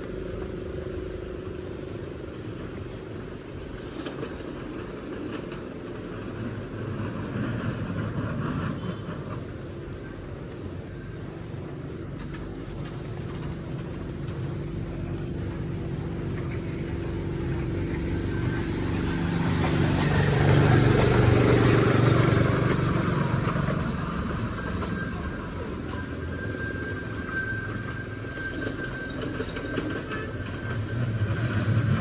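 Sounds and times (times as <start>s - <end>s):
vehicle passing by: 13.2s - 25.8s, 30.6s - 32.0s.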